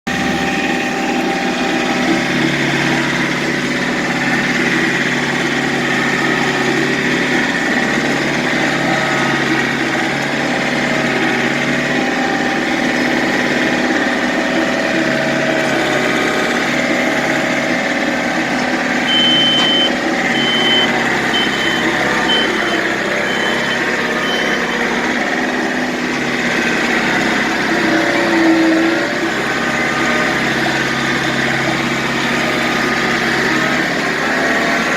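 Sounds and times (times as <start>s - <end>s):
diesel engine running: 0.0s - 34.9s
short high beeps: 19.0s - 24.8s.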